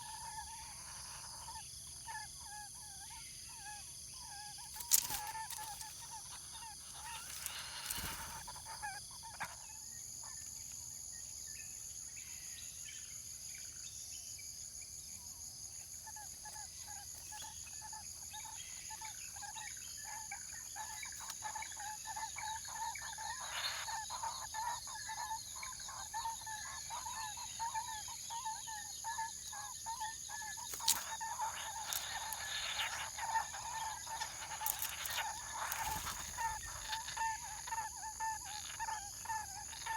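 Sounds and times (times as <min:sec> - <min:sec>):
birds calling: 0:04.6 - 0:09.8, 0:16.4 - 0:39.9.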